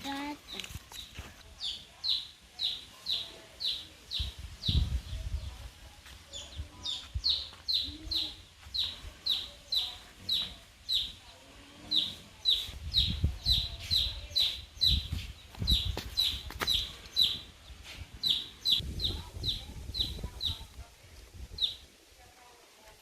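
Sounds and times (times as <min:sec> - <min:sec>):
bird chirping: 0:06.3 - 0:20.7.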